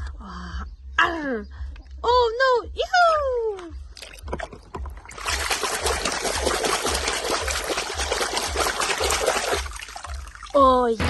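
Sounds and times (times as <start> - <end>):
water running: 4.0 - 11.0.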